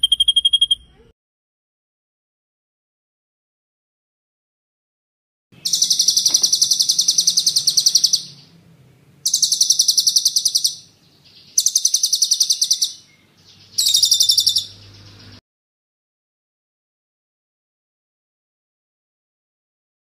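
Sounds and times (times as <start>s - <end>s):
songbird trilling rapid high notes: 0.0s - 0.9s, 5.6s - 8.6s, 9.2s - 15.4s.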